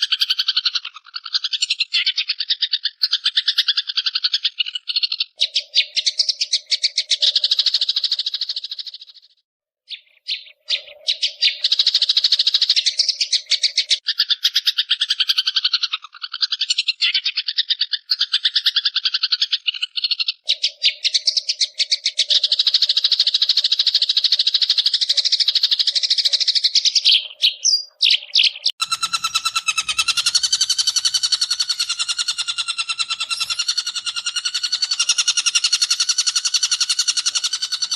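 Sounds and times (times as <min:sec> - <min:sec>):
buzzy bird call: 0:27.0 - 0:37.9
shrike rapid chattering call: 0:28.7 - 0:37.9.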